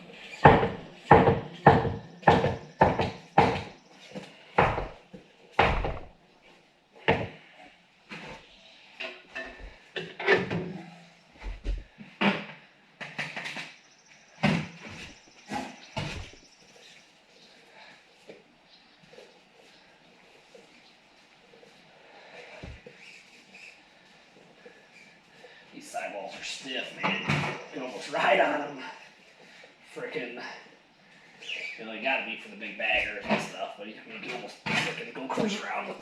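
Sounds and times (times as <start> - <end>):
knocks and thumps fitting tire: 0.4 - 3.8, 4.6 - 5.0, 5.6 - 6.1.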